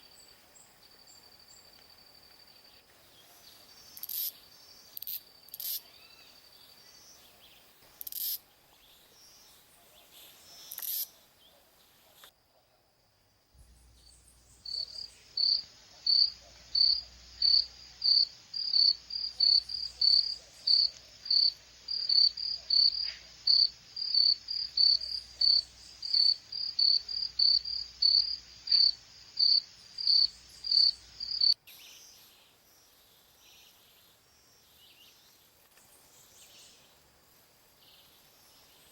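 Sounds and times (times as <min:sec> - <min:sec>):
squirrel chirping: 0:14.0 - 0:31.6.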